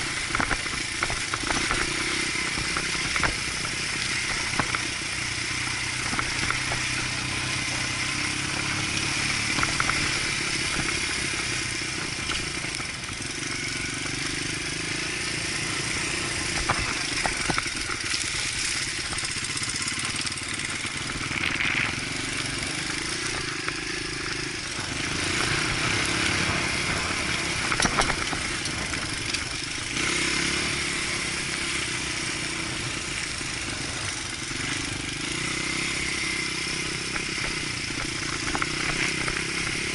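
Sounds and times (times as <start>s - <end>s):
dirt bike engine running: 0.0s - 39.9s
clatter and knocks: 27.6s - 29.6s.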